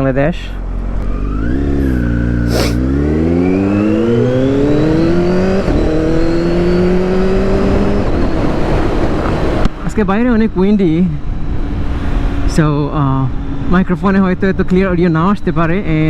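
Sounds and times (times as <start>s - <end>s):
motorcycle engine accelerating: 0.5s - 9.8s.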